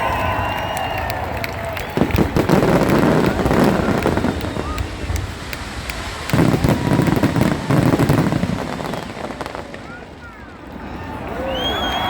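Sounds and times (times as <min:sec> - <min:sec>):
fireworks crackling: 0:00.0 - 0:12.0
fireworks booming: 0:01.7 - 0:11.2.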